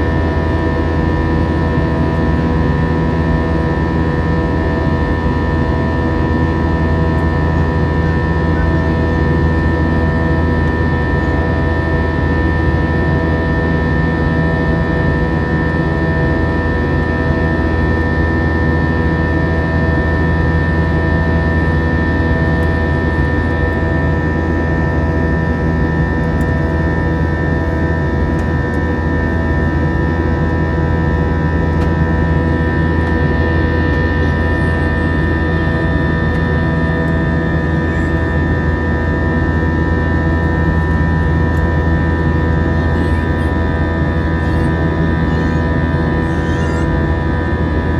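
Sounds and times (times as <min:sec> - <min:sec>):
jet engine drone in cabin: 0:00.0 - 0:47.9.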